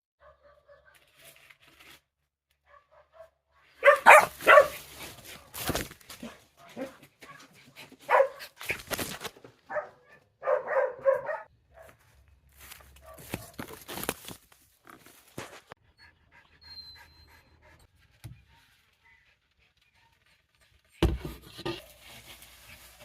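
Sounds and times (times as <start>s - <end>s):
dogs barking: 0.2s - 1.0s, 2.6s - 5.1s, 6.2s - 8.6s, 9.6s - 12.0s, 13.0s - 13.6s
dog yipping: 2.7s - 4.8s, 8.1s - 8.6s, 9.7s - 11.5s.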